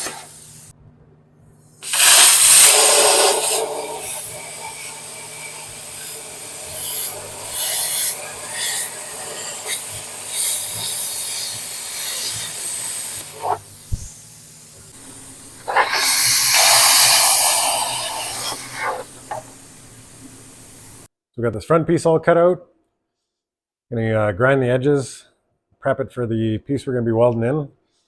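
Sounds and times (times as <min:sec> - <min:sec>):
cutting tool rasping through steel: 0:02.4 - 0:13.6.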